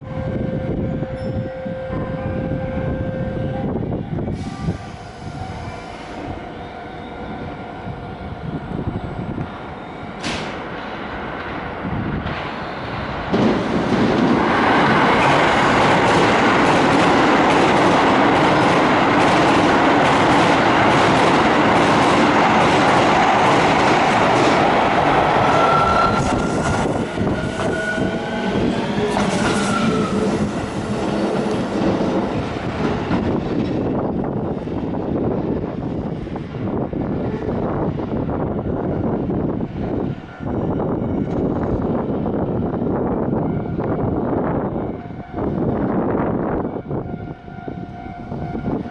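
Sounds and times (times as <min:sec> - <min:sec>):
electric train rumbling on rails: 0:00.0 - 0:48.9.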